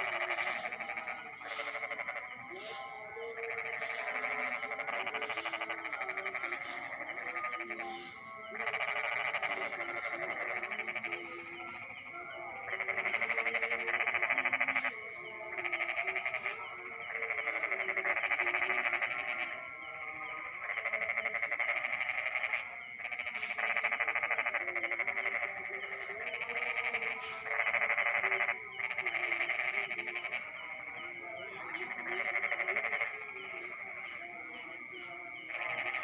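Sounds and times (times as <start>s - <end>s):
frogs trilling: 0.0s - 36.0s
high insect trill: 0.0s - 36.0s.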